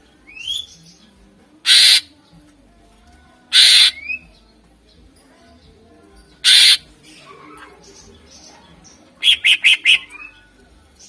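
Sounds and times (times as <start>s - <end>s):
bird harsh rasping calls: 1.6s - 2.1s, 3.5s - 4.2s, 6.4s - 8.1s, 9.2s - 10.4s.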